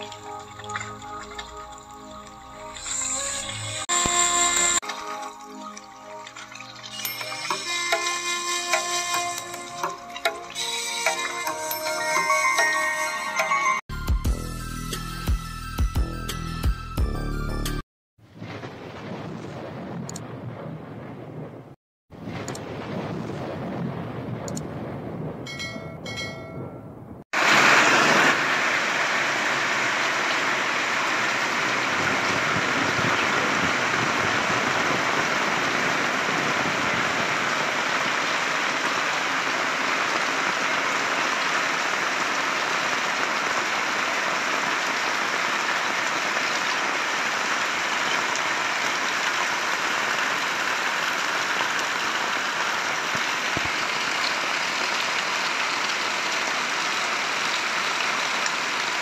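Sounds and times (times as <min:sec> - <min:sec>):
heavy rain on paving and roofs: 0:00.0 - 0:12.9, 0:18.2 - 0:25.5, 0:27.4 - 0:59.0
short chiming tones: 0:06.9 - 0:10.0.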